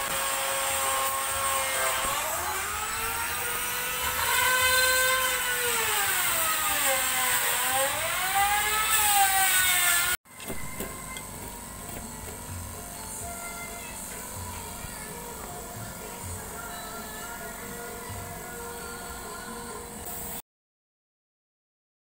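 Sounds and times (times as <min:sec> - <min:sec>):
power tool motor whine: 0:00.0 - 0:20.4
hiss: 0:12.5 - 0:20.4.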